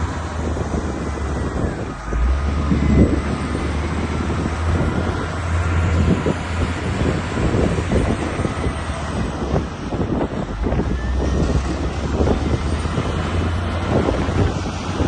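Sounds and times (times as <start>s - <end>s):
diesel engine droning: 0.0s - 15.0s
wind buffeting microphone: 0.0s - 15.0s.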